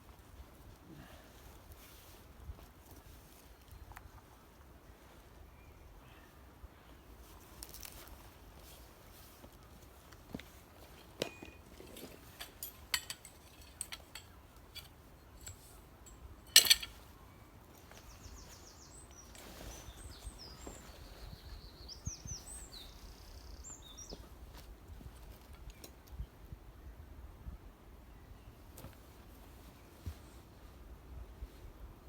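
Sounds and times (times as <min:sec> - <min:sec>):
songbird chirping and trilling: 0:17.2 - 0:24.4.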